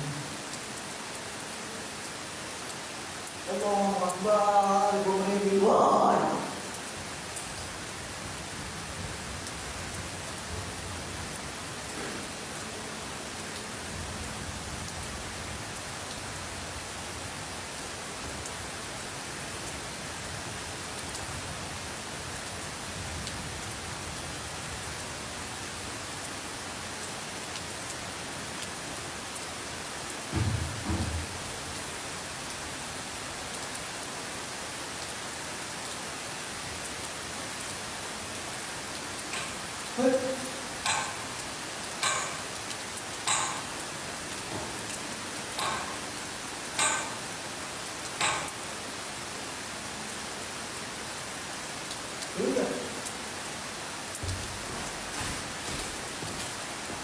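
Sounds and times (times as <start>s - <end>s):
low thumps: 30.3s - 31.6s
steady hiss: 36.0s - 50.1s.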